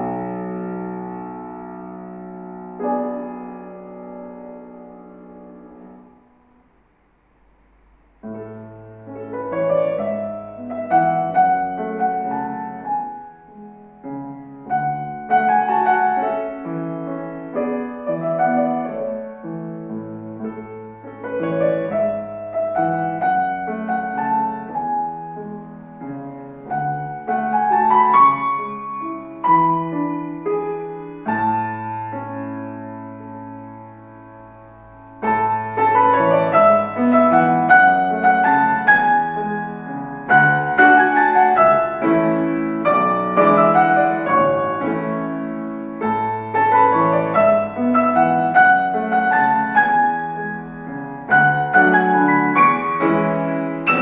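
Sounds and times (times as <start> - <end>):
solo piano piece: 0.0 - 54.0.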